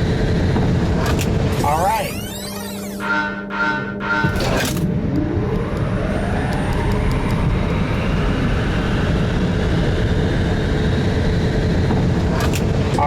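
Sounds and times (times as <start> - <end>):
electric motor whining: 0.0 - 12.9
road and wind rumble: 4.6 - 13.0.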